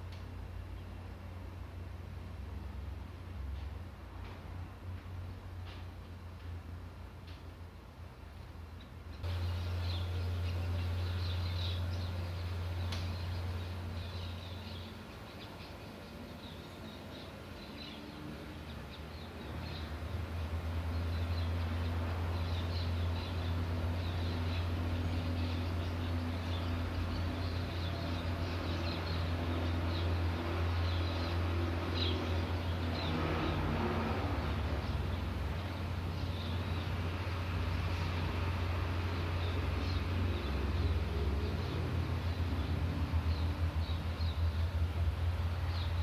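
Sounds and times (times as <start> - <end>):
birds chirping: 8.7 - 33.6, 34.3 - 46.0
low motor hum: 9.2 - 46.0.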